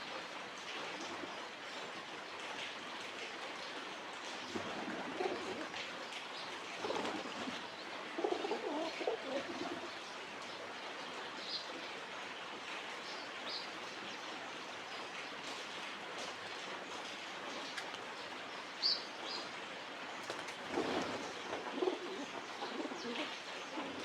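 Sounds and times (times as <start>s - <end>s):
pigeons cooing: 4.6s - 5.8s, 6.8s - 10.0s, 20.4s - 24.0s.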